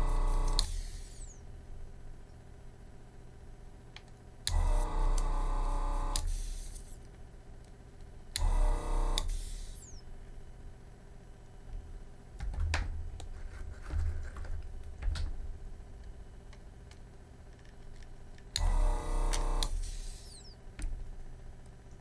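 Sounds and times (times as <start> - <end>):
vacuum pump buzzing: 0.0 - 1.7, 4.4 - 7.0, 8.3 - 10.8, 11.4 - 21.6.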